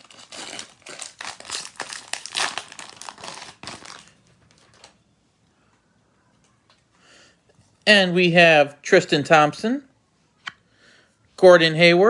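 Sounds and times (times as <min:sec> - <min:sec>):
wrapper crinkling and tearing: 0:00.0 - 0:05.0.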